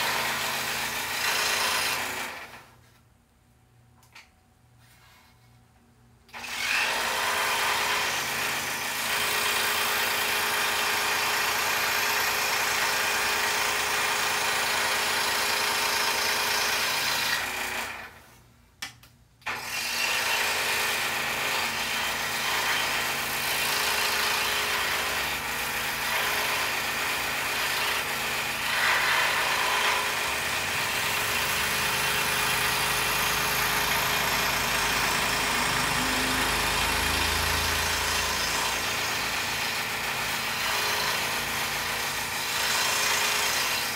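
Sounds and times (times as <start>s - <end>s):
scroll saw cutting wood: 0.0s - 2.8s, 6.3s - 18.2s, 19.4s - 43.9s.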